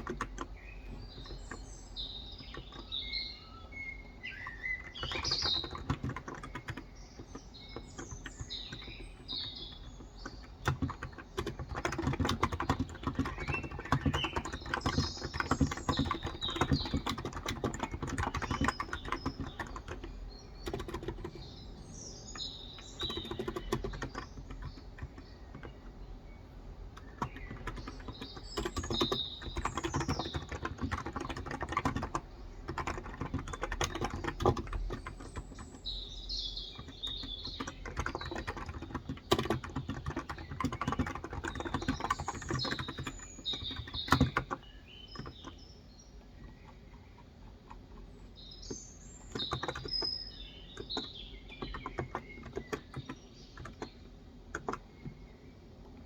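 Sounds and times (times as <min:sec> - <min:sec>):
keyboard typing: 0:00.0 - 0:45.6, 0:46.2 - 0:55.3
birds chirping: 0:00.0 - 0:56.0.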